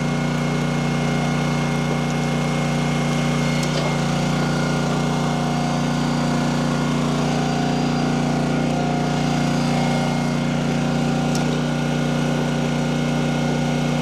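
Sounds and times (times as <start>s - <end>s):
gas engine running steadily: 0.0s - 14.0s.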